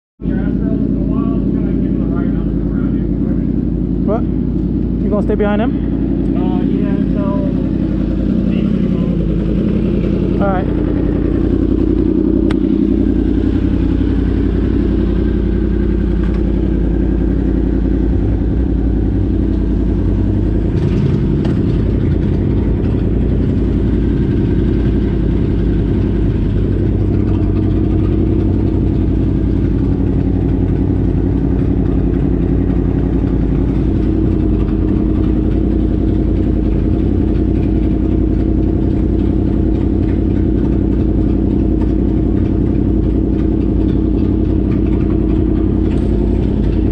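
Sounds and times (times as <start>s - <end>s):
vehicle engine droning: 0.2s - 46.9s.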